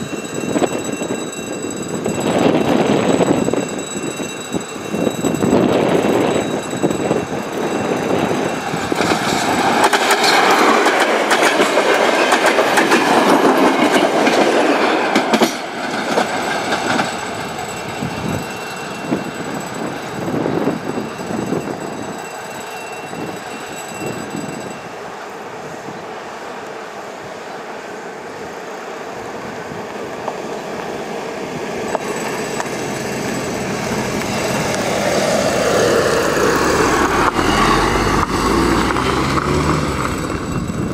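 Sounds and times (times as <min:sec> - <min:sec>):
train wheels clacking over rail joints: 0:00.0 - 0:24.7, 0:31.8 - 0:40.9
passing engine: 0:27.7 - 0:40.9.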